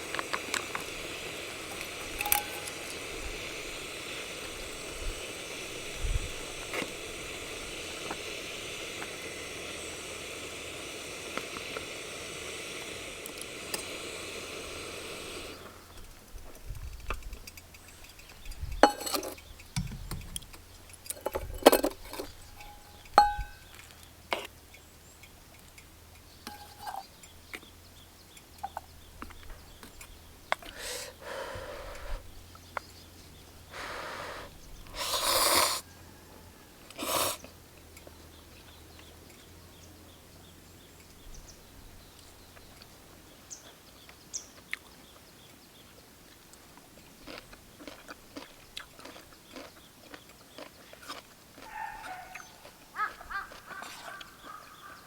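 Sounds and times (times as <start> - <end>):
steady hiss with clicks: 0.0 - 30.8
utensils clinking on cookware: 1.7 - 3.1, 18.5 - 19.4, 20.9 - 23.9, 26.5 - 27.1.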